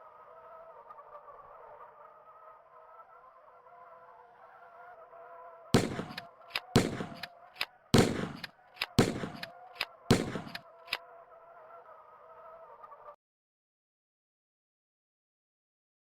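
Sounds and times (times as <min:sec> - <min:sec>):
faint clicks: 0:05.8 - 0:11.0
sharp loud bangs: 0:05.8 - 0:11.0.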